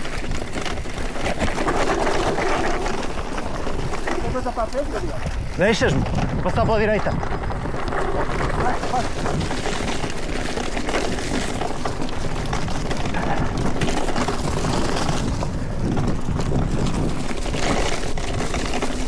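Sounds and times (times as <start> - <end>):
bike knocks and rattles: 0.0 - 19.0
tyres running over dirt and stones: 0.0 - 19.0.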